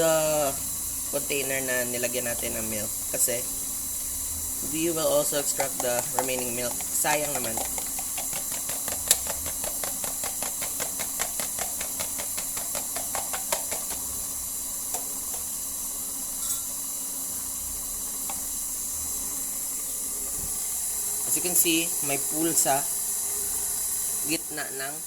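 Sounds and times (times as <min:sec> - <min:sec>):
stand mixer running: 0:00.0 - 0:16.3
egg beaten by hand clicking: 0:05.0 - 0:15.6.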